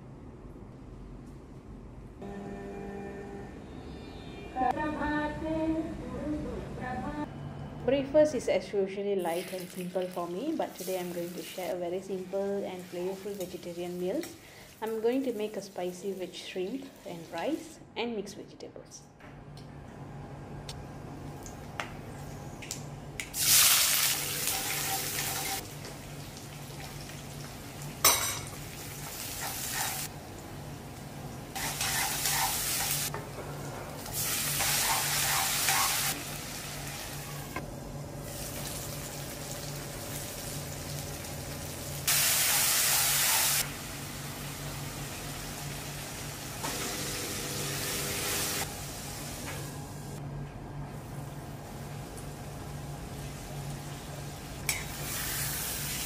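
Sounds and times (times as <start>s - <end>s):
food sizzling in hot oil: 9.3s - 11.8s, 23.4s - 30.1s, 31.5s - 33.1s, 34.1s - 37.3s, 38.2s - 49.4s, 54.6s - 56.0s.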